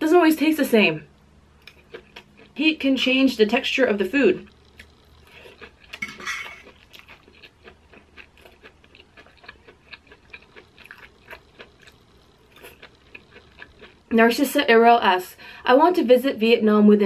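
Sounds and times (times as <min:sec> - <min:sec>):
chewing with mouth clicks: 0:01.1 - 0:02.6, 0:04.4 - 0:14.1.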